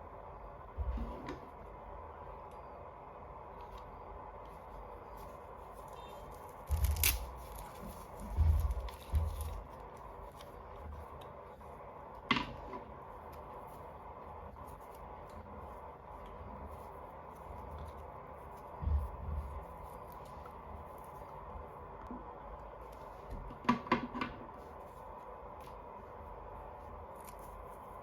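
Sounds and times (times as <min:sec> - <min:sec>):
packaging rustling: 0:05.1 - 0:11.2
packaging crackle: 0:05.8 - 0:11.2.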